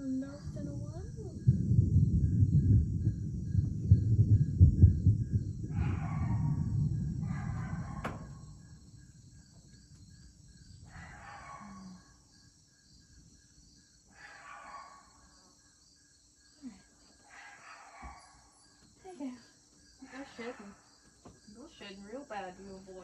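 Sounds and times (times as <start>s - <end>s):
low rumble: 0.0s - 10.9s
crickets chirping: 0.0s - 23.0s.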